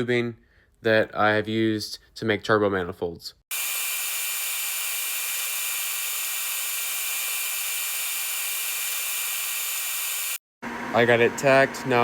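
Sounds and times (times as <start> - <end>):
welding arc hissing: 3.5 - 10.4.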